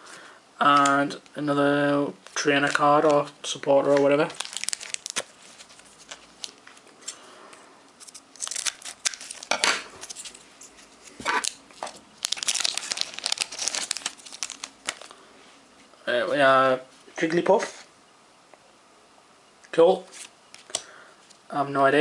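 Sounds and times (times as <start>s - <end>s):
foil wrapper crinkling and tearing: 4.3s - 6.6s, 8.0s - 10.4s, 12.2s - 15.1s
cards being handled: 12.2s - 15.1s.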